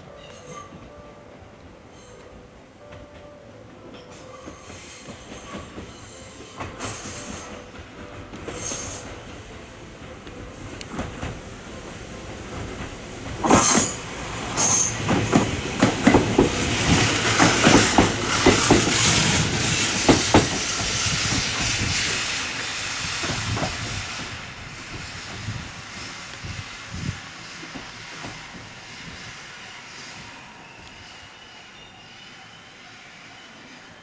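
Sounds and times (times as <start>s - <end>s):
train wheels clacking on rails: 3.9s - 31.0s.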